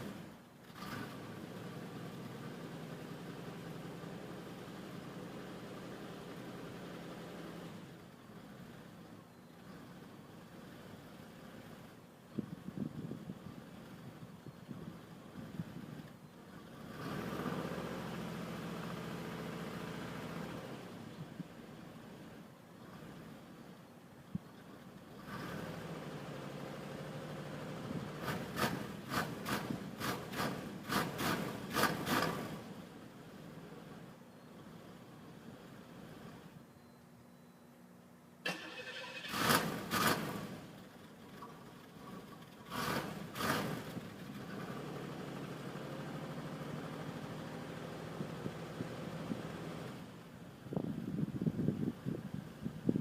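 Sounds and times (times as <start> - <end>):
car engine cold-starting: 38.4 - 48.6.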